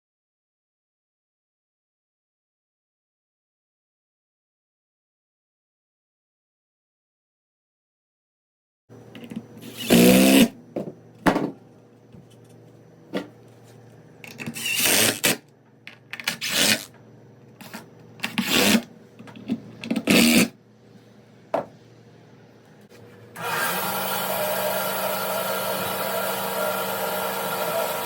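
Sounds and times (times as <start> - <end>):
bandsaw humming: 23.4 - 28.0.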